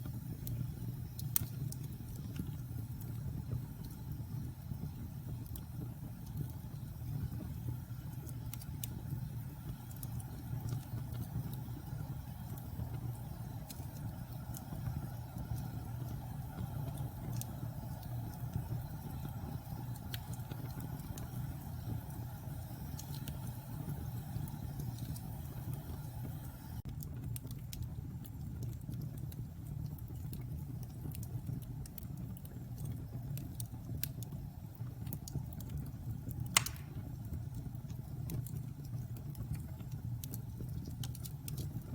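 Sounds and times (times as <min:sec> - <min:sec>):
fire crackles: 0:00.0 - 0:41.9
wood fire rumbling: 0:00.0 - 0:41.9
sharp pop from fire: 0:36.6 - 0:37.2.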